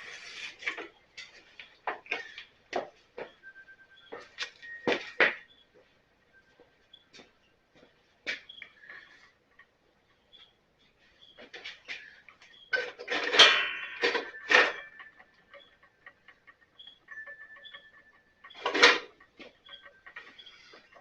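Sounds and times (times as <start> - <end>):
metal clanks and rattles: 12.6 - 21.0.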